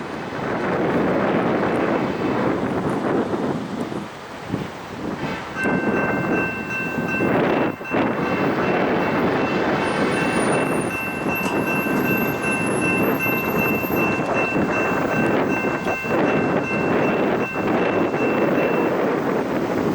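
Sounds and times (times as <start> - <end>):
train passing rumble: 0.0 - 19.9
high-pitched tone: 5.6 - 19.0.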